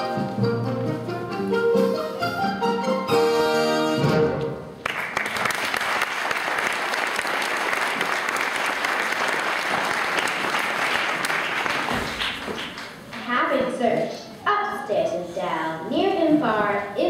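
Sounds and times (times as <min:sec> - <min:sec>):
audience applauding: 0:04.8 - 0:13.1.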